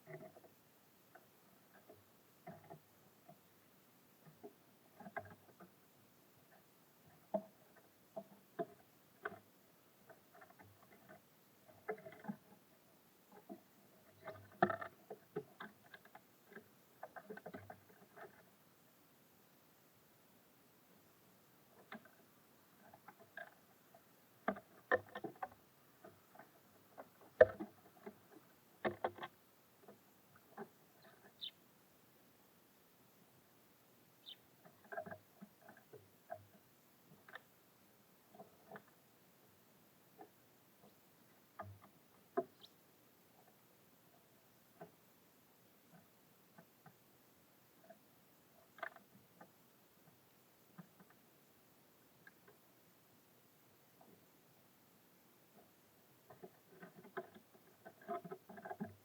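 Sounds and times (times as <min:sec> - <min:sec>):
birds pecking at feeder: 0:00.0 - 0:18.8, 0:20.5 - 0:31.7, 0:33.0 - 0:59.0
birds tapping at a feeder: 0:21.7 - 0:31.6.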